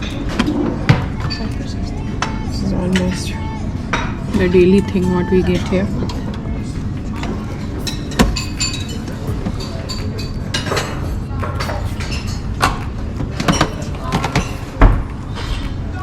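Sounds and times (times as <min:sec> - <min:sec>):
voices: 0:00.0 - 0:16.0
knocks and clinks: 0:07.1 - 0:16.0.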